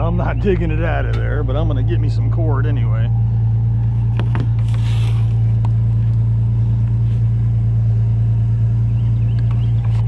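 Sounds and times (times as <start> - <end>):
truck engine running: 0.0 - 10.0.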